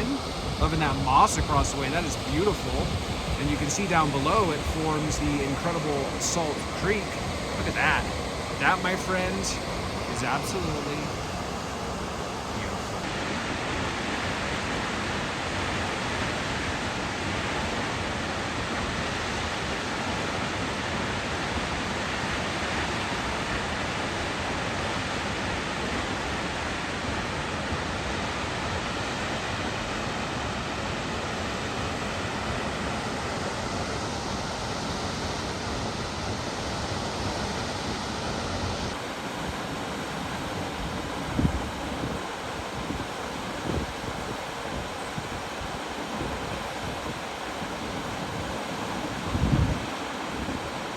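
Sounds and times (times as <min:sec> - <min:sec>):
wind buffeting microphone: 0:00.0 - 0:09.0, 0:38.9 - 0:50.9
waterfall roaring: 0:00.0 - 0:26.0, 0:27.0 - 0:50.9.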